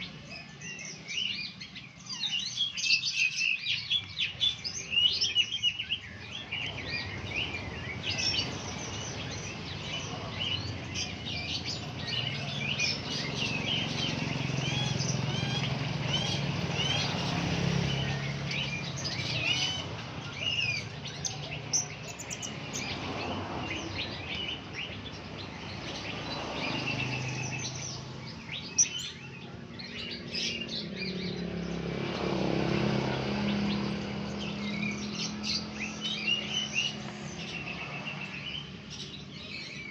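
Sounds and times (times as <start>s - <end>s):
parrots chirping: 0.0s - 31.4s.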